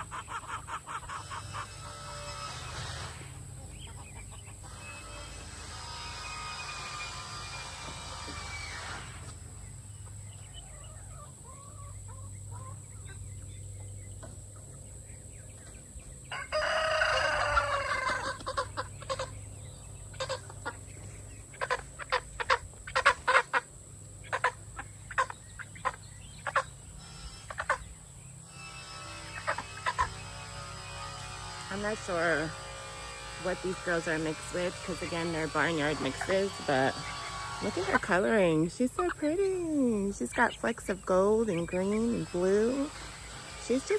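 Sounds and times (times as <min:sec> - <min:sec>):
chickens clucking: 0:00.0 - 0:43.9
rooster crowing: 0:16.3 - 0:18.4.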